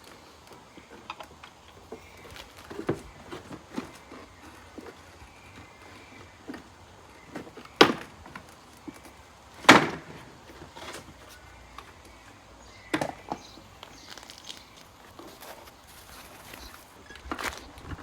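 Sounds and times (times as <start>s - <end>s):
sharp knocks of tools set down: 12.9s - 13.5s.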